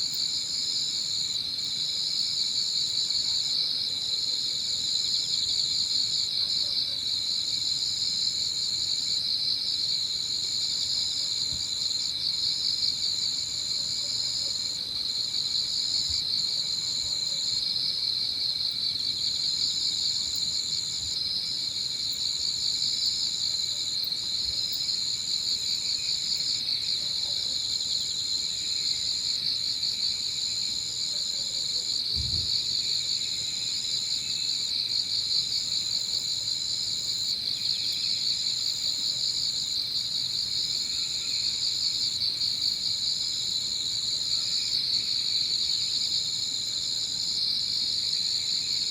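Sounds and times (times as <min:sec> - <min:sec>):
insects trilling: 0:00.0 - 0:48.9.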